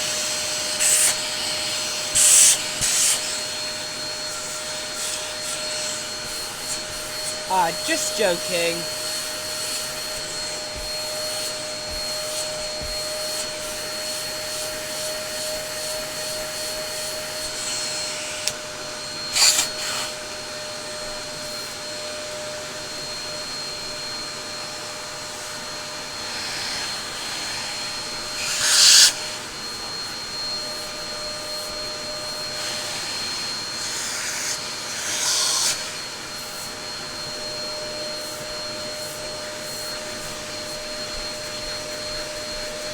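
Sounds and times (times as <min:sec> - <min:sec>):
upright vacuum cleaner running: 0:00.0 - 0:42.9.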